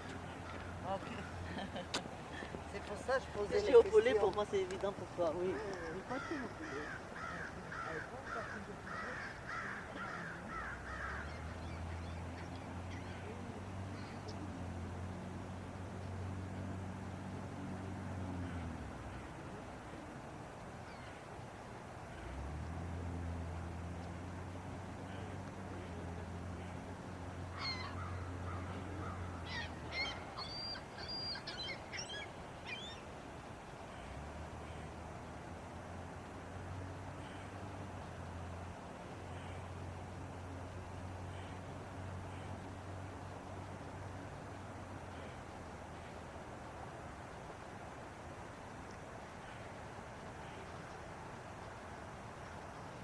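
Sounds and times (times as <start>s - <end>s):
steady background hiss: 0.0s - 53.0s
bird calling: 5.4s - 14.4s, 27.5s - 33.2s.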